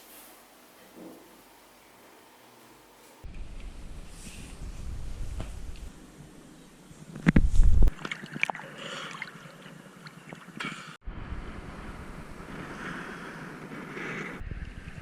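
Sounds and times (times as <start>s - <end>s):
wind buffeting microphone: 3.2s - 8.0s, 11.0s - 15.0s.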